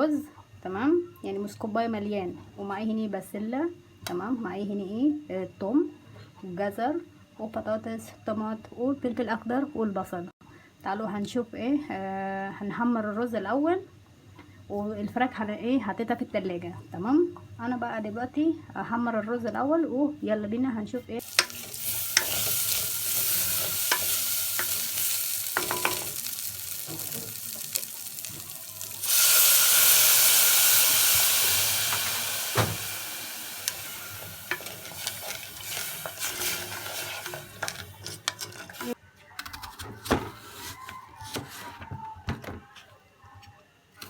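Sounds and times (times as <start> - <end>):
spoon scraping a pan: 21.2 - 30.0, 32.9 - 41.8
rice sizzling in oil: 21.2 - 39.0
spoon clicking against pan: 25.6 - 26.3.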